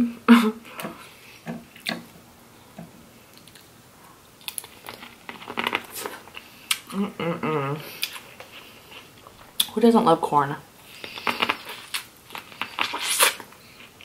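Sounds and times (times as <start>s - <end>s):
person humming: 6.9s - 7.9s
crunchy bites and chewing: 10.9s - 14.0s.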